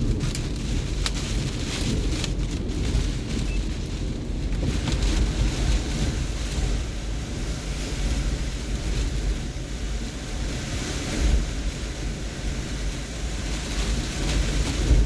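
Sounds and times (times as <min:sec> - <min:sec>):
hurricane wind gusts: 0:00.0 - 0:15.0
wind buffeting microphone: 0:00.0 - 0:15.0.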